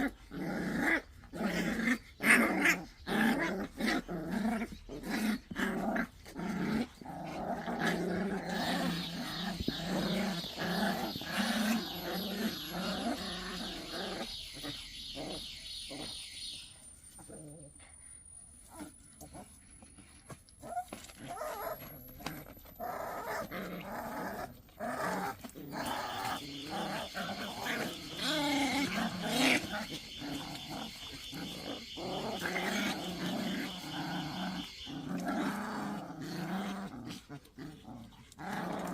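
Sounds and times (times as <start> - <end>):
puppies growling: 0.0 - 16.4, 18.6 - 38.9.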